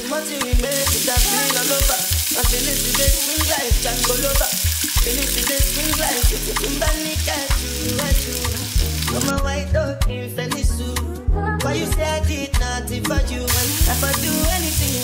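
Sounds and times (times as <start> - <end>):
vegetables sizzling in frying pan: 0.0 - 9.3, 13.5 - 15.0
background music with steady beat: 0.0 - 15.0
eggs frying: 0.2 - 9.3, 13.5 - 15.0.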